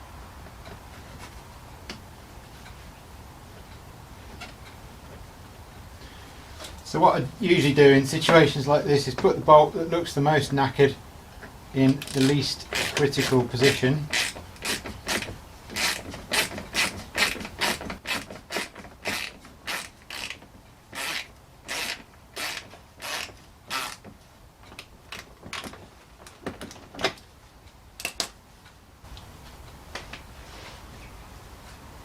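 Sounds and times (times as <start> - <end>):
hand ratchet clicking: 11.9 - 24.1.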